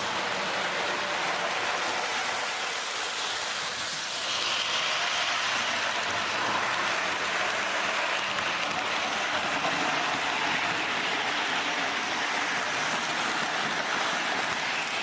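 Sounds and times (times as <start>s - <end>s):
model train rolling on track: 0.0s - 15.0s.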